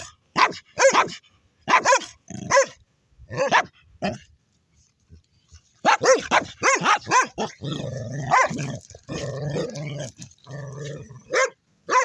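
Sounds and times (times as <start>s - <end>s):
dogs barking: 0.0s - 2.8s, 3.4s - 3.7s, 5.8s - 7.6s, 8.2s - 8.8s, 11.3s - 12.0s
dogs growling: 7.3s - 11.5s.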